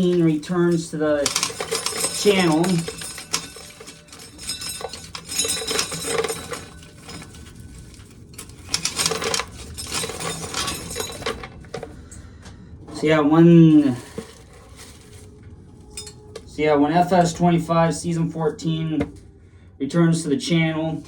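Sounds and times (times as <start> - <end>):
corn kernels rattling: 0.0 - 11.7.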